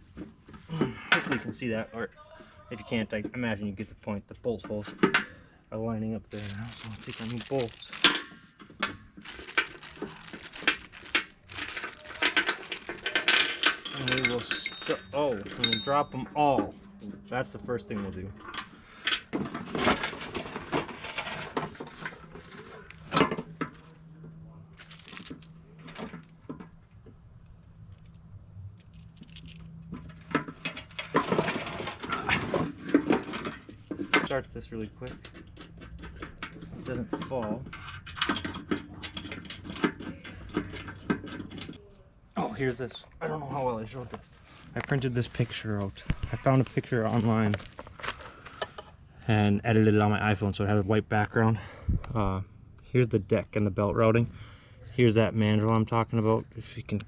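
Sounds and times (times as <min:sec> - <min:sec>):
rustling: 0:06.2 - 0:15.7, 0:24.7 - 0:26.4
metal hardware clinking: 0:06.3 - 0:16.6
metal tools clinking and rattling: 0:06.3 - 0:17.0, 0:17.8 - 0:24.0, 0:24.8 - 0:26.8, 0:27.7 - 0:41.8.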